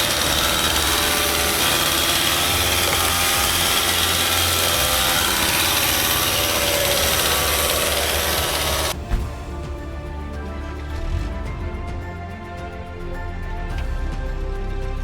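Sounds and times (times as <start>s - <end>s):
chainsaw engine running: 0.0s - 9.0s.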